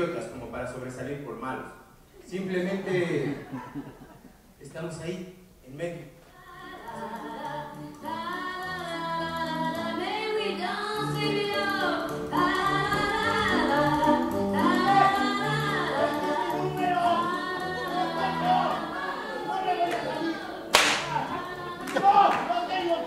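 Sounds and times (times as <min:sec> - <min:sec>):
voices singing together: 0:06.3 - 0:23.0.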